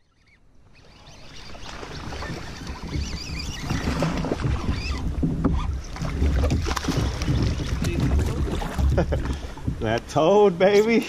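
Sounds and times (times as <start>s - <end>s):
water sloshing and splashing: 0.0s - 11.0s
wind rumbling on microphone: 1.2s - 10.6s.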